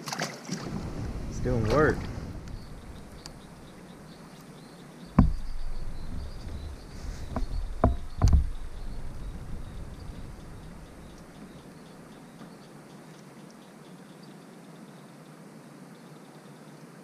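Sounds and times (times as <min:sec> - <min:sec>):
hollow knocks on a kayak: 0:05.1 - 0:11.5.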